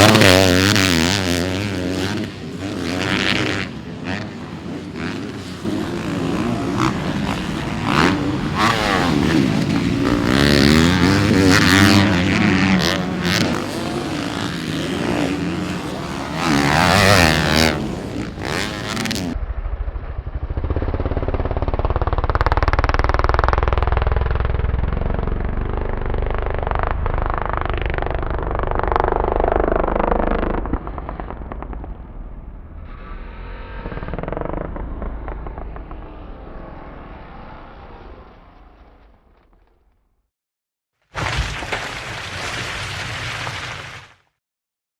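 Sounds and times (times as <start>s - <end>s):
motocross bike engine revving: 0.0s - 19.4s, 32.8s - 38.4s
dull engine drone with deep rumble: 19.3s - 40.0s.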